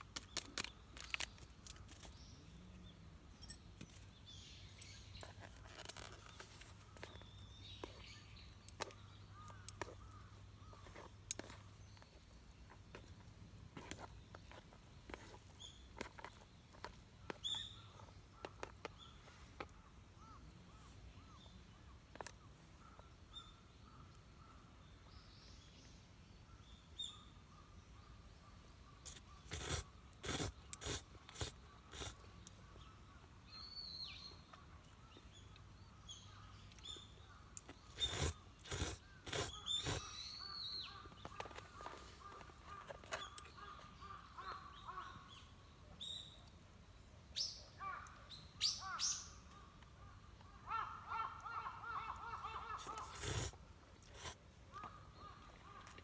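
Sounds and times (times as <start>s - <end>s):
bird calls: 3.4s - 13.2s, 13.8s - 24.8s, 26.5s - 46.6s, 47.3s - 56.0s.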